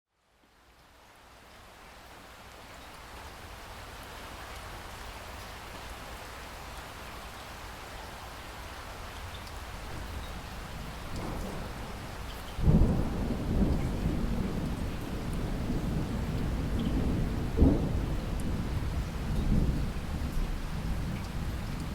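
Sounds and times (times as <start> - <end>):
rain hiss: 0.2 - 21.9
thunder clap and rumble: 9.9 - 21.9.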